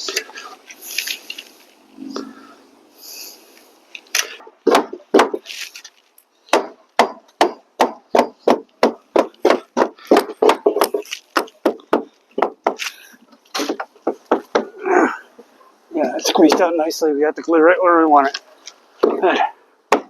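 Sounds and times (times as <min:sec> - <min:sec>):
sharp blows on wood: 0:06.5 - 0:12.9.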